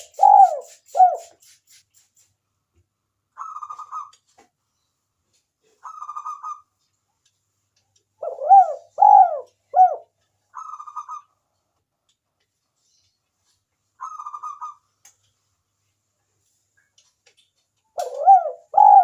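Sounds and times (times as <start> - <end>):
dove cooing: 0.0 - 1.3, 8.2 - 11.2, 18.0 - 19.0
dove purring trills: 0.0 - 1.3, 8.2 - 10.0, 18.0 - 19.0.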